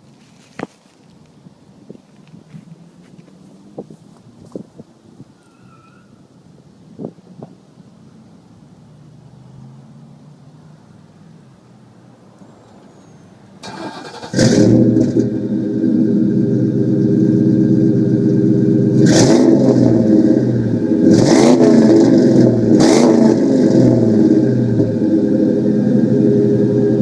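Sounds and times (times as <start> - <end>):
engine cranking: 13.6 - 15.3
car engine idling: 13.6 - 27.0.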